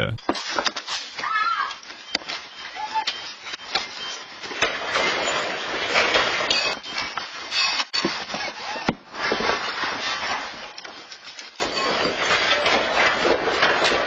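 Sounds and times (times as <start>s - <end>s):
objects rattling and clattering: 3.8s - 14.0s.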